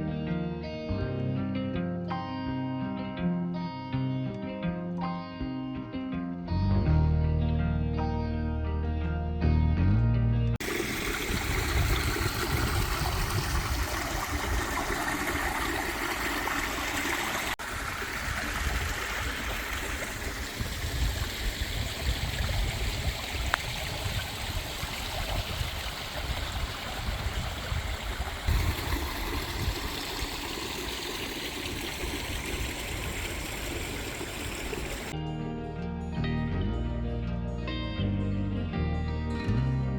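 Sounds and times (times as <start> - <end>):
stream water trickling: 10.6 - 35.2.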